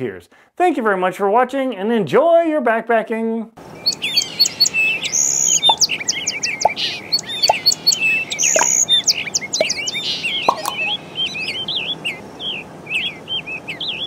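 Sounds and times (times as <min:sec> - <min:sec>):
small birds chirping: 0:03.6 - 0:14.0.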